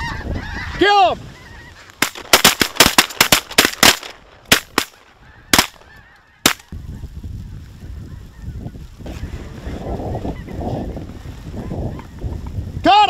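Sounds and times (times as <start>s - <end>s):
wind rumble on microphone: 0.0s - 1.8s, 5.2s - 13.0s
shotgun shots: 2.0s - 5.8s, 6.4s - 6.7s.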